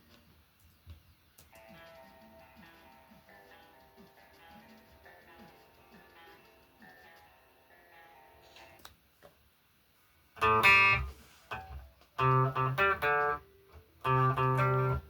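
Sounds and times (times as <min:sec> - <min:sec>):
guitar chords strummed: 0:10.4 - 0:15.0.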